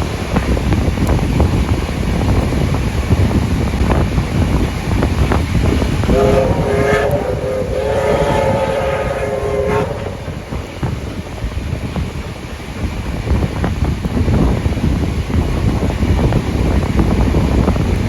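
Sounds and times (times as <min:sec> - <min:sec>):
rumble of moving train: 0:00.0 - 0:18.0
wind: 0:00.0 - 0:18.0
steam whistle blasts: 0:06.0 - 0:11.0.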